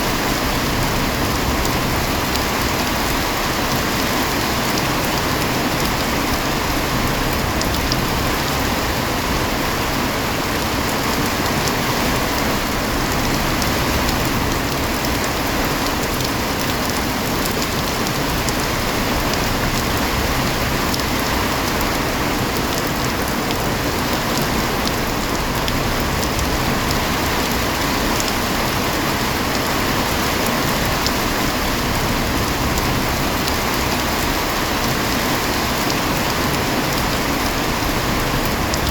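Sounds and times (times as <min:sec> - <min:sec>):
heavy rain hissing: 0:00.0 - 0:38.9
faint raindrop ticks: 0:07.2 - 0:08.3, 0:13.1 - 0:28.5, 0:30.4 - 0:34.0, 0:34.8 - 0:38.9.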